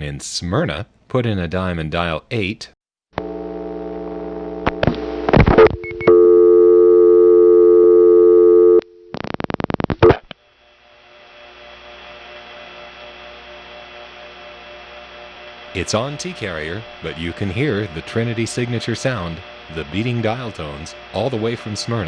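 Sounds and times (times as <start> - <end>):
dial tone: 3.2 - 4.6, 5.6 - 9.2
faint hum of beating tones: 10.7 - 22.0.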